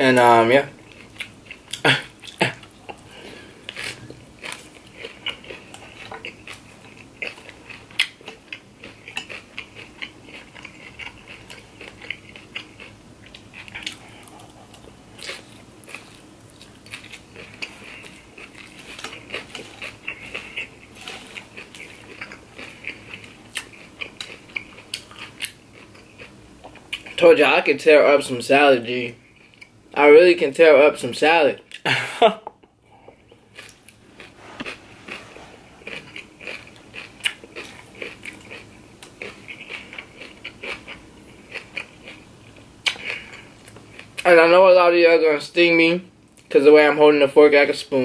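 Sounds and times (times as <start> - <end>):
chewing and crunching: 0.2 - 27.2, 33.0 - 44.3.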